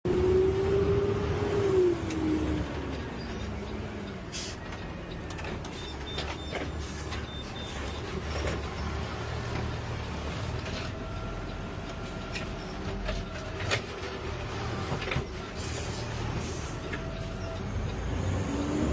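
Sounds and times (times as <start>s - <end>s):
garbage truck engine rumble: 0.1s - 18.9s.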